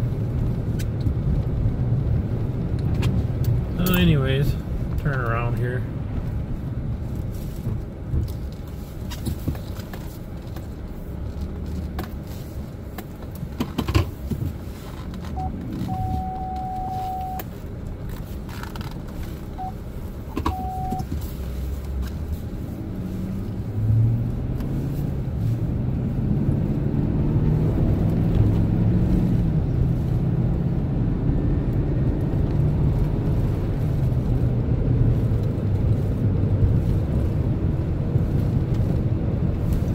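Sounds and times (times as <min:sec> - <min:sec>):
truck engine and road rumble: 0:00.0 - 0:39.9
short steady beep: 0:15.4 - 0:17.4, 0:20.5 - 0:21.1.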